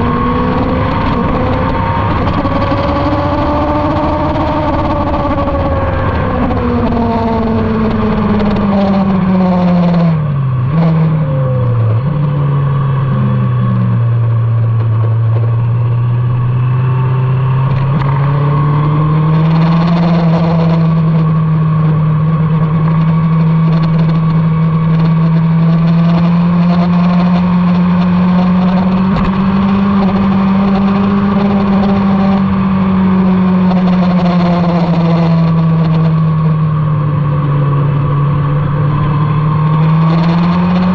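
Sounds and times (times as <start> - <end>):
motorcycle engine at speed: 0.0 - 40.9.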